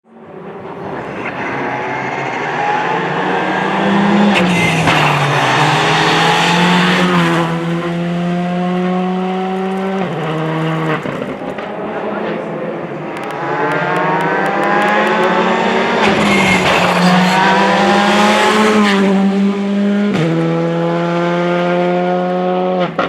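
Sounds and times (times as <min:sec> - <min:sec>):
rally car engine at full throttle: 0:00.1 - 0:23.0.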